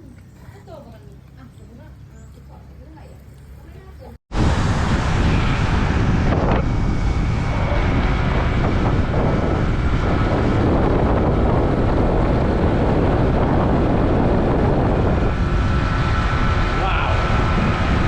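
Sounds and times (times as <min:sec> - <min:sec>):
scooter engine running: 0:00.0 - 0:04.2, 0:06.4 - 0:18.0
wind rushing over microphone: 0:04.3 - 0:18.0.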